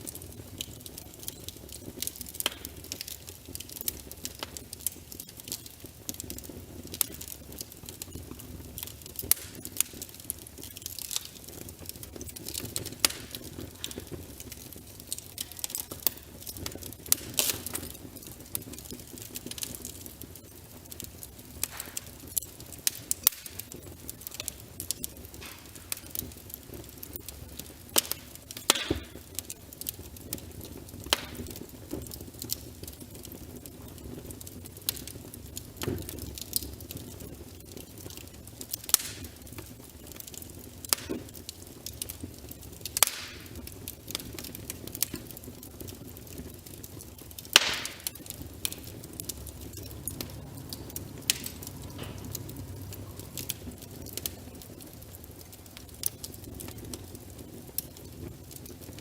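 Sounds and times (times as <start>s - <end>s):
burning logs crackling: 0.0s - 59.0s.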